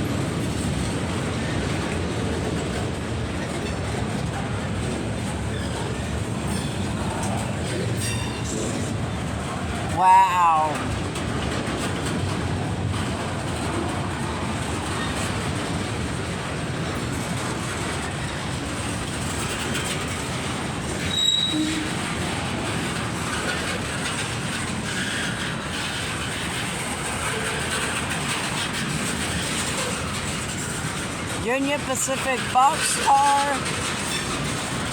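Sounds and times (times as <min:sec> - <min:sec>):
freight train cars rolling: 0:00.0 - 0:34.9
wheel squeal: 0:21.0 - 0:22.3.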